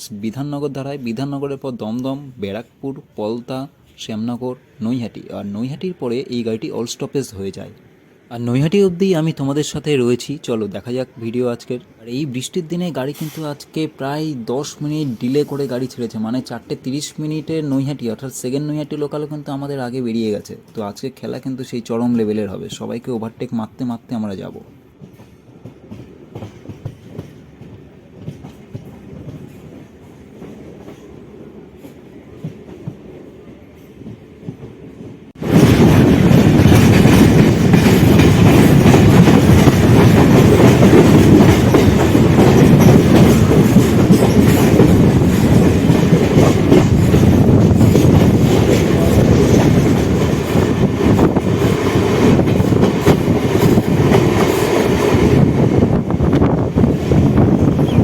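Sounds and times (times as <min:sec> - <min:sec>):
train wheels on rails: 0:24.3 - 0:58.0.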